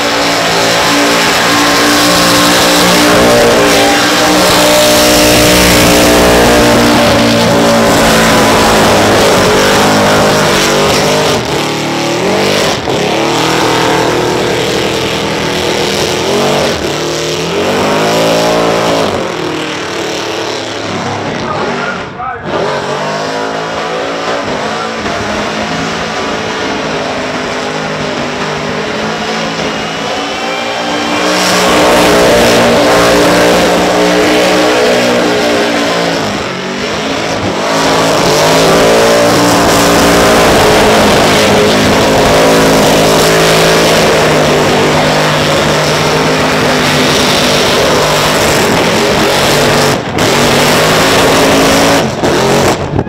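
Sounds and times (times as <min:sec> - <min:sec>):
truck engine revving high: 0:00.0 - 0:53.0.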